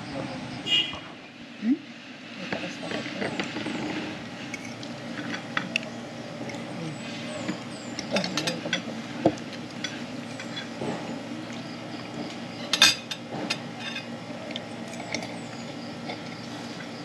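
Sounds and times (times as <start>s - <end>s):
steady background hum: 0.0s - 17.0s
dishes and cutlery clinking: 7.4s - 9.0s, 9.8s - 11.1s, 12.6s - 15.4s.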